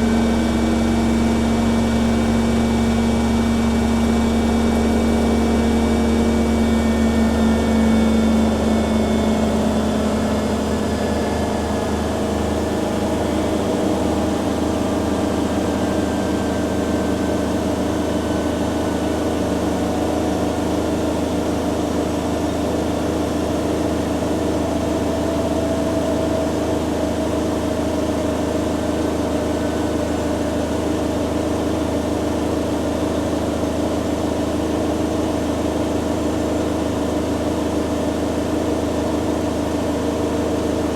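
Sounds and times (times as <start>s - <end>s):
washing machines spinning: 0.0s - 40.9s.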